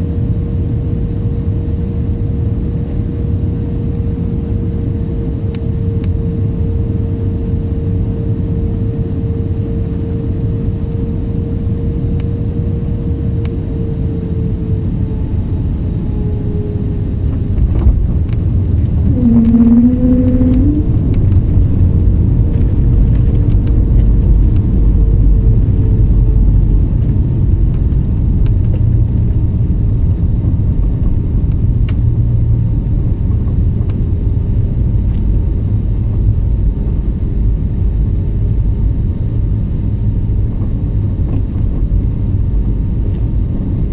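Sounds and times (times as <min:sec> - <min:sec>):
airliner engine rumble: 0:00.0 - 0:43.9
faint steady tone: 0:19.0 - 0:21.0
brief rising tone: 0:19.0 - 0:21.2.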